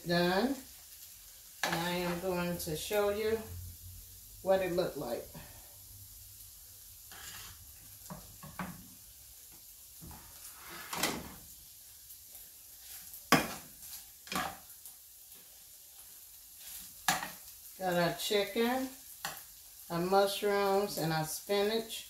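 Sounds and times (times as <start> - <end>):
utensil scraping a pan: 7.1 - 8.8, 10.0 - 11.4, 12.8 - 14.6.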